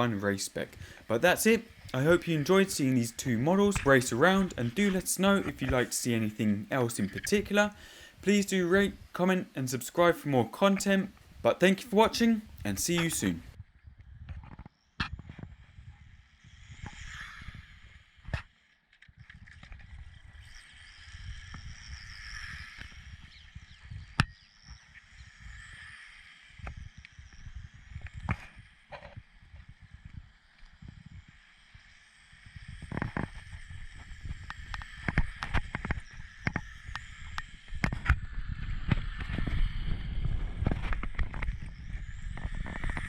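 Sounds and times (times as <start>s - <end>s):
faint high whine: 0.0s - 13.8s
radio-controlled car running: 19.3s - 28.4s, 29.0s - 43.0s.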